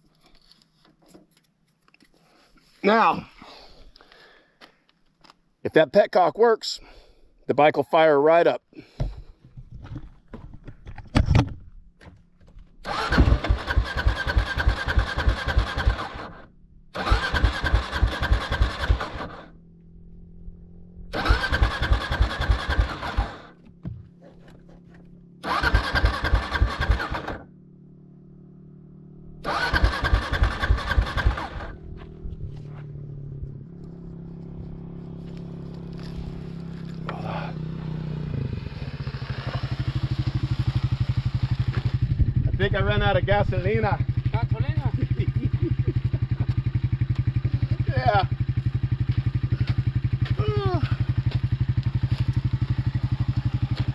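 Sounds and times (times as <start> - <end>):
motorcycle engine cranking on starter: 12.8 - 19.5, 21.1 - 23.6, 25.4 - 27.4, 29.4 - 31.8
engine approaching: 12.8 - 53.9.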